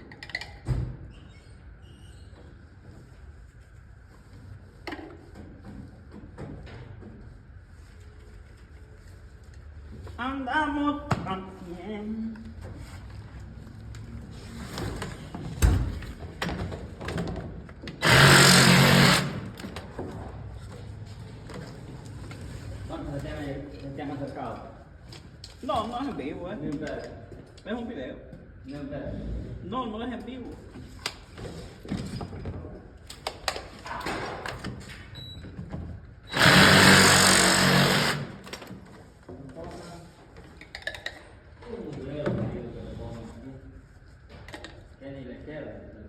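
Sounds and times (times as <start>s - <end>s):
machine buzzing: 18.0s - 19.7s, 36.3s - 38.5s
motor whirring: 18.0s - 19.7s, 36.3s - 38.5s.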